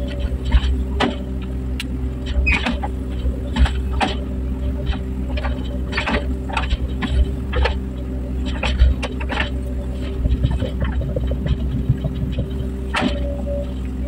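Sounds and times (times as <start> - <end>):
excavator diesel engine humming: 0.0 - 14.0
short squeaks: 2.3 - 4.0.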